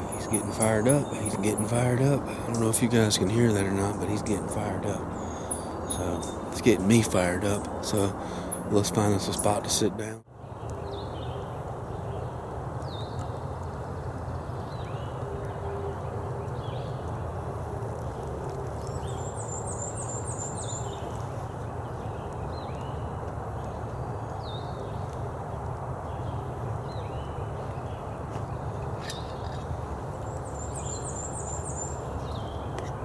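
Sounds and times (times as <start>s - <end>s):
high bird trill: 0.0s - 10.2s, 28.6s - 33.0s
songbirds chirping: 0.0s - 33.0s.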